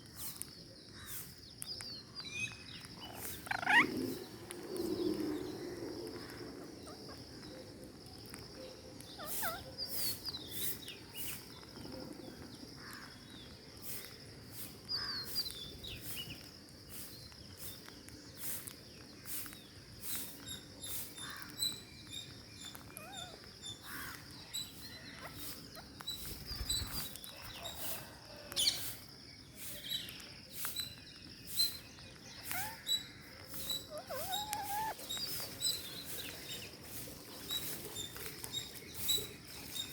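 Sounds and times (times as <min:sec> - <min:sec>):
parakeets chirping and squeaking: 0:02.6 - 0:04.9, 0:09.1 - 0:10.8, 0:20.2 - 0:27.3, 0:31.4 - 0:39.9.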